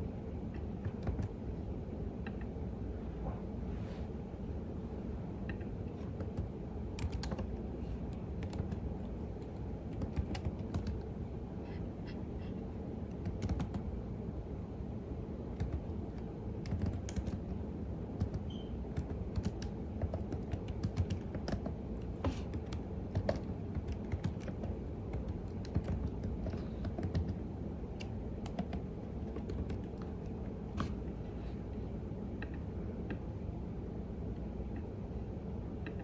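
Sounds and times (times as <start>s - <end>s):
low background noise: 0.0s - 36.0s
keyboard typing clicks: 0.6s - 1.4s, 5.5s - 11.1s, 13.1s - 13.8s, 15.6s - 17.6s, 18.2s - 31.0s.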